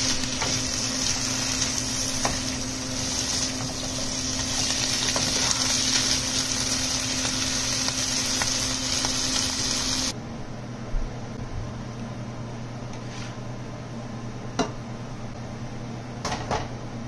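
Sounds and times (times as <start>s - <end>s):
food sizzling in a wok: 0.0s - 10.1s.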